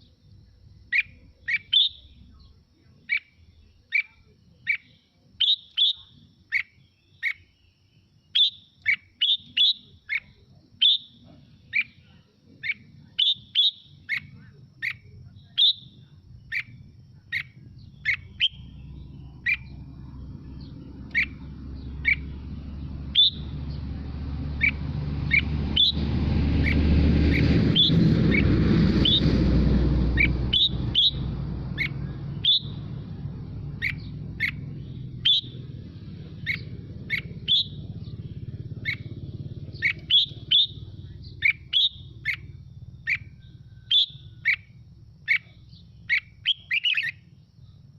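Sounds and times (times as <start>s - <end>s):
low rumbling noise: 14.4s - 46.1s.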